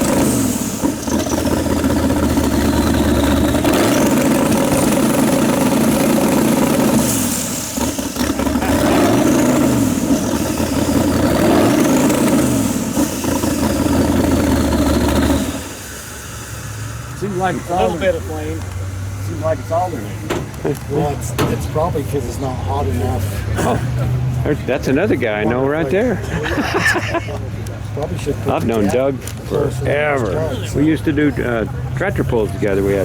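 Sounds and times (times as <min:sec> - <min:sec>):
car engine revving: 0:00.0 - 0:26.2.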